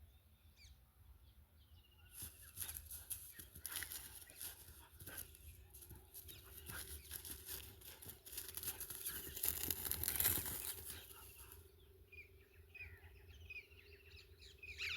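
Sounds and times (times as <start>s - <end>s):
scratchy rustling: 2.2s - 11.6s.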